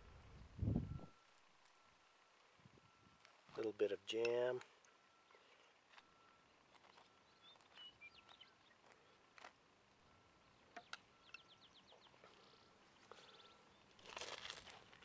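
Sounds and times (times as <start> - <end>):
distant bird chirps: 4.7 - 14.0
bird trills: 6.4 - 8.9, 10.4 - 13.9.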